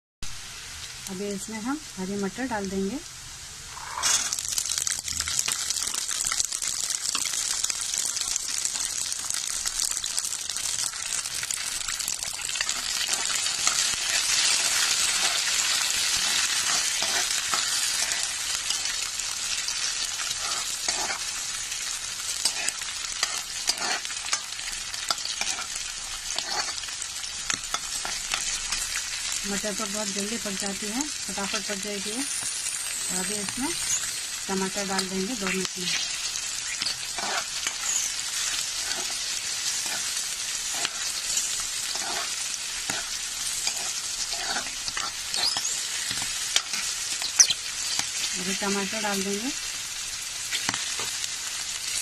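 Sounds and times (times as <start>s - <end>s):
peas sizzling in hot oil: 0.2s - 52.0s
metal spoon scraping pan: 3.7s - 4.4s, 16.1s - 18.9s, 20.2s - 21.3s, 22.4s - 24.5s, 36.8s - 48.1s.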